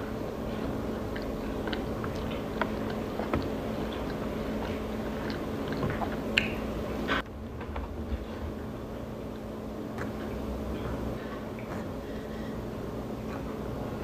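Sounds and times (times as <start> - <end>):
person chewing food: 0.0 - 7.3
steady low hum: 0.0 - 14.0.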